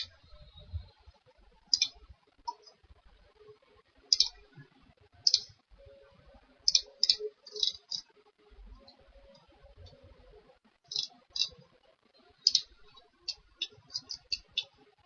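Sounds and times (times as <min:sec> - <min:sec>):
computer mouse clicking: 0:01.7 - 0:01.9, 0:05.3 - 0:05.5, 0:12.4 - 0:14.7.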